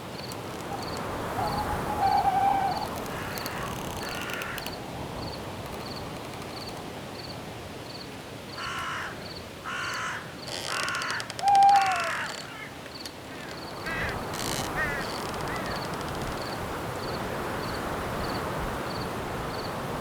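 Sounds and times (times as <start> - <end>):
wind hiss: 0.0 - 9.6, 13.0 - 20.0
cricket chirping: 0.2 - 9.4, 12.9 - 19.8
bird harsh calls: 0.7 - 4.6, 13.3 - 16.0.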